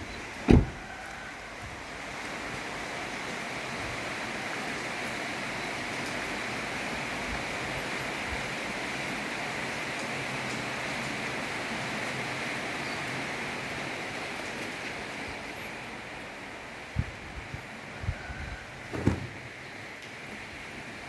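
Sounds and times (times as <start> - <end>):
loud knock: 18.9 - 19.4.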